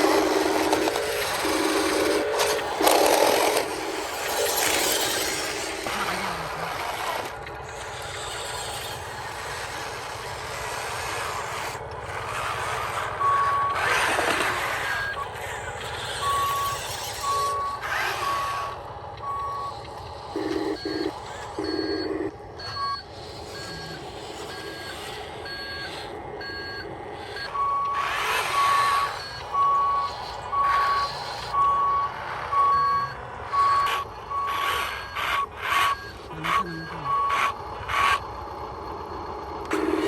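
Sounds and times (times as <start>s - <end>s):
reversing beeper: 0.0s - 40.0s
fainter higher beeps: 16.0s - 37.6s.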